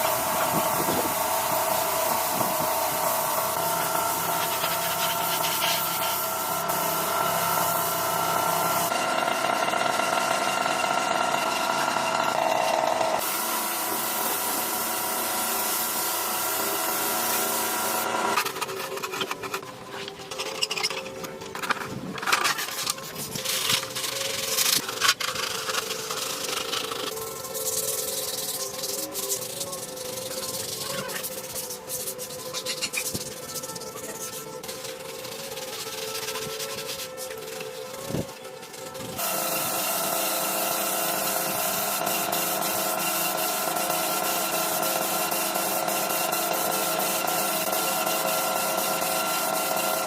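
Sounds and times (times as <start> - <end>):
tool hissing and rubbing on car body: 0.0 - 8.9, 13.2 - 19.3, 22.5 - 50.0
rubbing and scraping on a surface: 4.3 - 6.2, 21.7 - 39.2.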